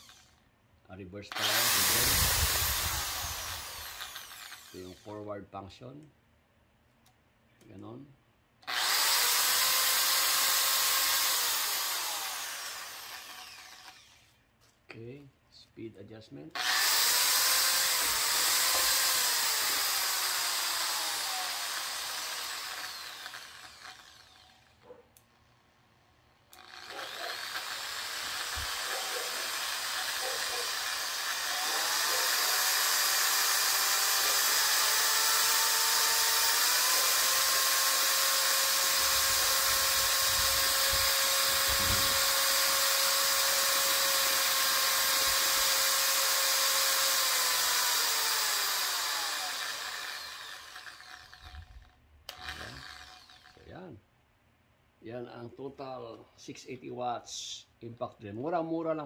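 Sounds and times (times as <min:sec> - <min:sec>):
electric drill motor whine: 0:00.0 - 0:00.4, 0:01.3 - 0:05.1, 0:08.6 - 0:14.4, 0:16.6 - 0:24.8, 0:26.5 - 0:53.6.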